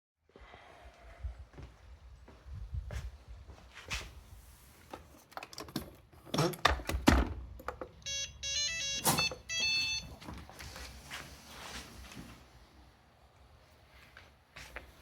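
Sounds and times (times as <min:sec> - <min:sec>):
electronic start-up tune beeps: 0:08.1 - 0:10.2.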